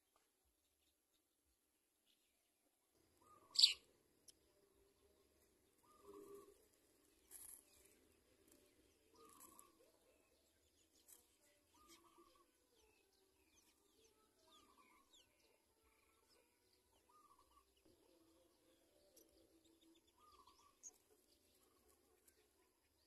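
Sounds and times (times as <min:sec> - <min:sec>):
faint birds chirping: 0:00.0 - 0:23.0.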